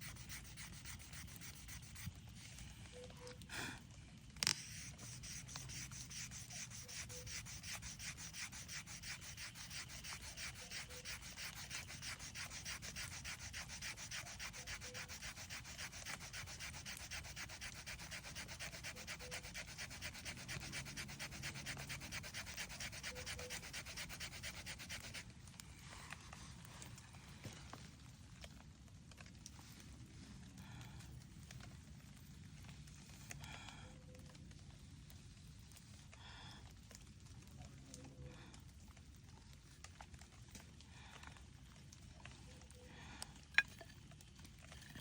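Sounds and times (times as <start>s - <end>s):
wooden stick scraping wood: 0.0s - 2.7s, 4.4s - 25.2s, 43.5s - 45.0s.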